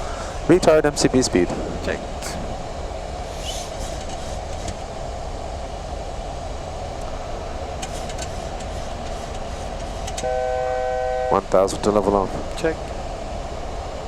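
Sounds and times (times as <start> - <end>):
aircraft cockpit rush and rumble: 0.0 - 14.0
faint clicks: 7.8 - 10.3.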